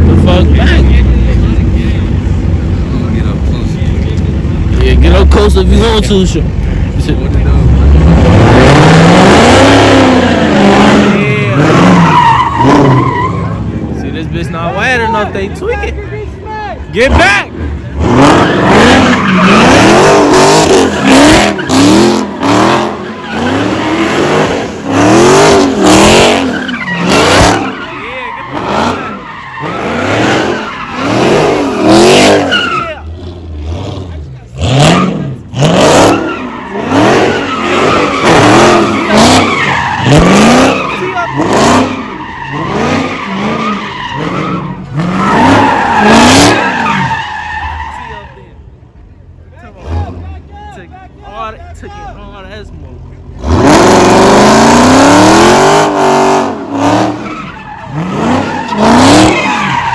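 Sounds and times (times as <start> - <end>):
car engine revving: 0.0 - 48.4, 52.5 - 59.9
tyres squealing on pavement: 7.9 - 15.9, 16.9 - 48.6, 53.4 - 59.9.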